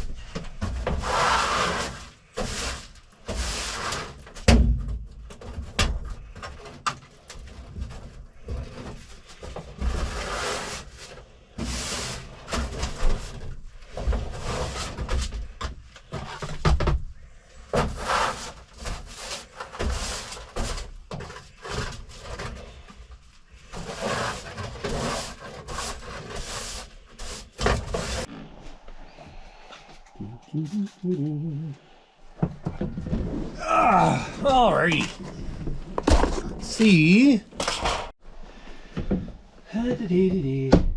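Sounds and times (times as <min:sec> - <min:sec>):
scraping and rustling: 0:00.0 - 0:04.4, 0:05.3 - 0:38.2
knocks and clunks: 0:32.3 - 0:33.5.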